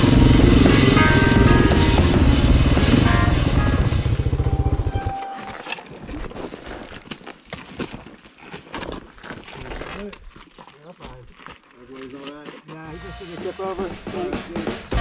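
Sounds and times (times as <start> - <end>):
dirt bike engine puttering: 0.0 - 6.2
crunches and clicks on gravel: 5.6 - 12.8.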